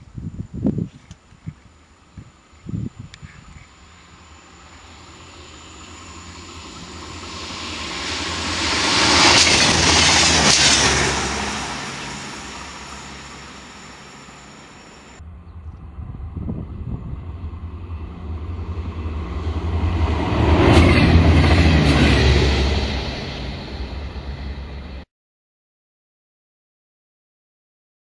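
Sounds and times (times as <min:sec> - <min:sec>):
low rumble: 0:01.5 - 0:25.0
diesel railcar passing: 0:03.7 - 0:25.0.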